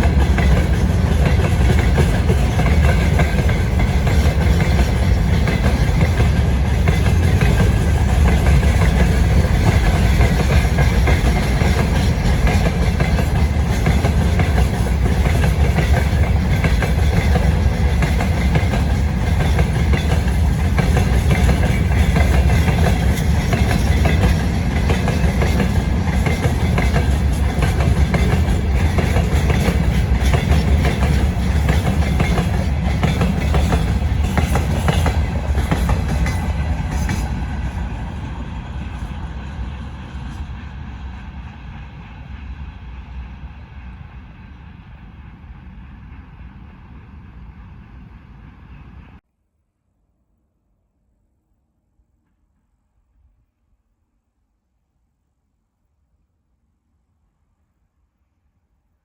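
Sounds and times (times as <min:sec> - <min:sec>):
freight train wheels clattering: 0:00.0 - 0:40.7.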